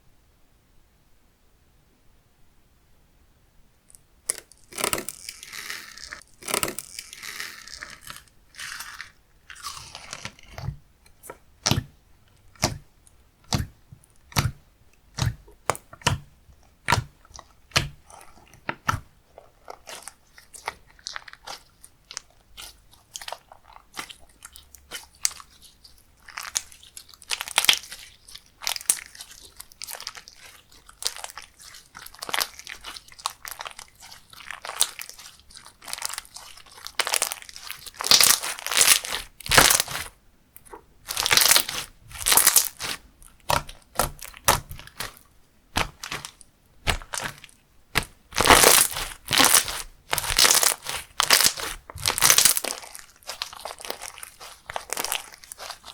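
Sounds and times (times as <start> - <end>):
slime clicking and popping: 4.3 - 9.1, 13.5 - 19.1, 26.3 - 40.1, 41.1 - 55.9.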